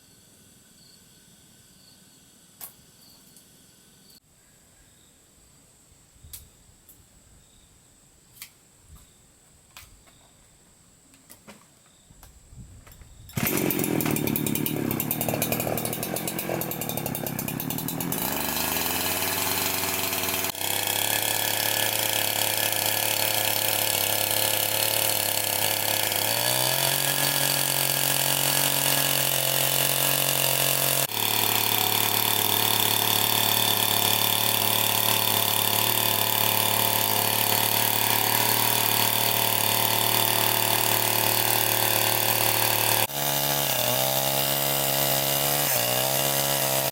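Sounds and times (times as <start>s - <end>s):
chainsaw running: 13.4s - 46.9s.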